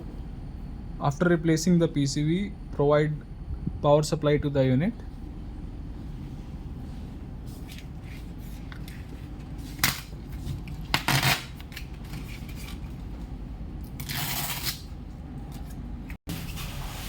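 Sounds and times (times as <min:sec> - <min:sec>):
steady low hum: 0:00.0 - 0:17.0
scraping rustle: 0:16.3 - 0:17.0.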